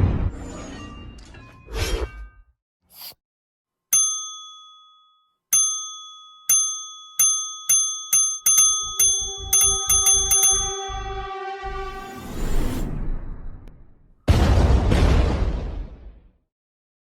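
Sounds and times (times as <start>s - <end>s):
bell-like ding: 3.9s - 11.2s.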